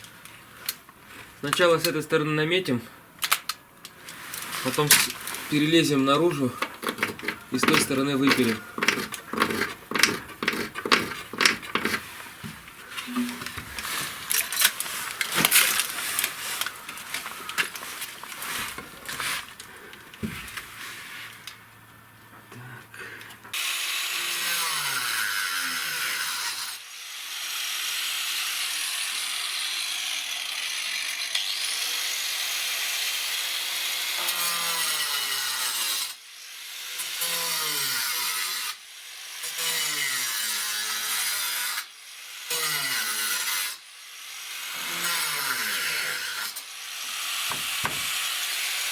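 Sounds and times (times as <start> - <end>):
power tool cutting roof sheeting: 6.3 - 19.6, 23.6 - 38.8, 39.4 - 48.9
knocks and scrapes: 6.5 - 19.6, 47.5 - 48.4.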